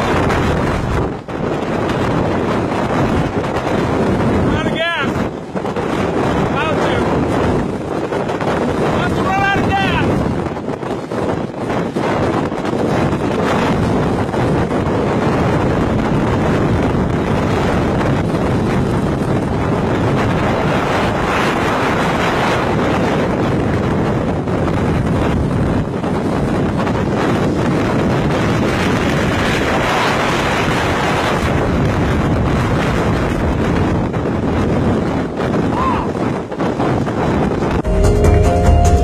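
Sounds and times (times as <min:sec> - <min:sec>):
strong wind on microphone: 0:00.0 - 0:39.0.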